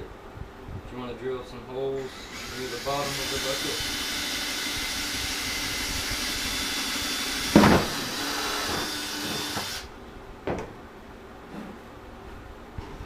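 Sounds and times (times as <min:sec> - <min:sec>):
electric drill boring plastic: 0:02.1 - 0:09.9.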